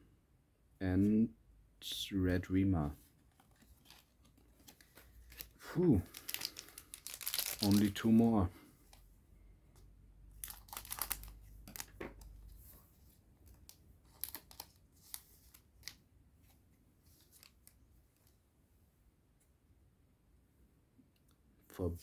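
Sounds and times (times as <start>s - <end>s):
foil wrapper crinkling: 3.3s - 8.3s, 10.4s - 12.4s, 13.5s - 16.0s.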